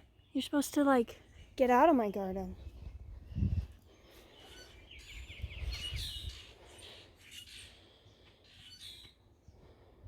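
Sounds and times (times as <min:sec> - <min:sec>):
small birds chirping: 0:00.0 - 0:10.0
bird trill: 0:04.3 - 0:07.8, 0:08.4 - 0:09.2.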